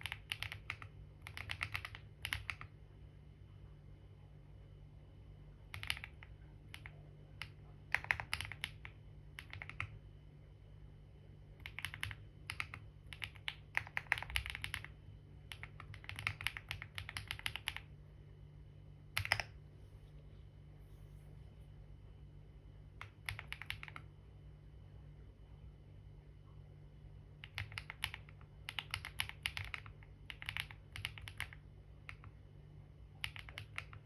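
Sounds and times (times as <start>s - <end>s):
typing on a computer keyboard: 0.0s - 2.8s, 5.7s - 10.0s, 11.6s - 17.9s, 19.1s - 19.6s, 23.0s - 24.1s, 27.4s - 32.4s, 33.1s - 34.0s
faint low hum: 0.0s - 34.0s.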